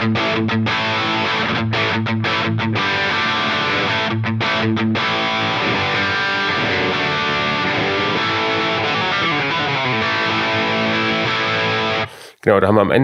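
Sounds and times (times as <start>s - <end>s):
distorted electric guitar: 0.0s - 12.2s.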